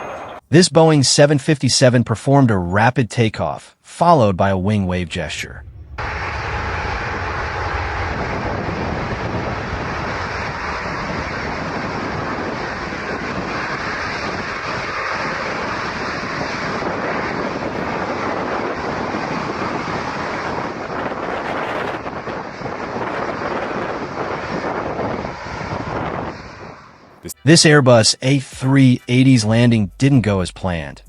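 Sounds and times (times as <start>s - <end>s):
jet engines roaring: 0.0s - 0.4s, 5.1s - 28.4s.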